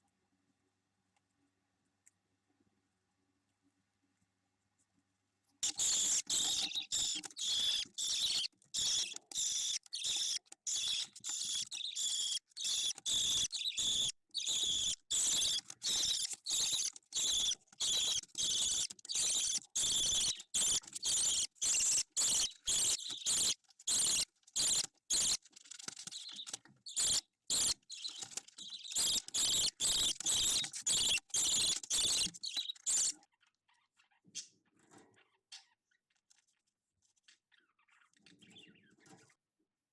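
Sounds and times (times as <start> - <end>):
bird chick raspy chirps: 5.6 - 25.4, 26.4 - 34.5.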